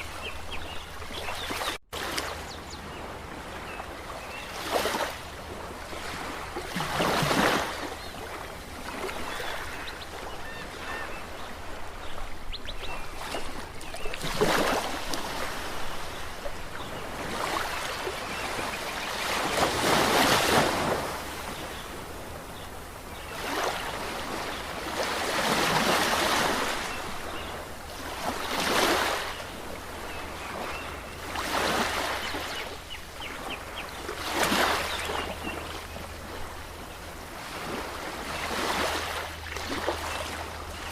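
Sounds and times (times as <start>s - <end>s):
waves breaking on shore: 0.0s - 40.9s.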